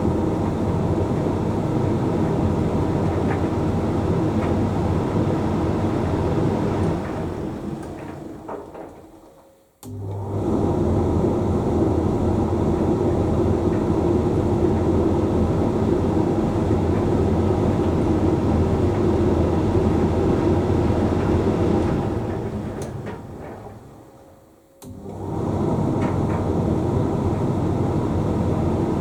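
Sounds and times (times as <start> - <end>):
dryer drum tumbling and humming: 0.0 - 29.0
dryer motor click: 9.8 - 10.3, 24.8 - 25.2.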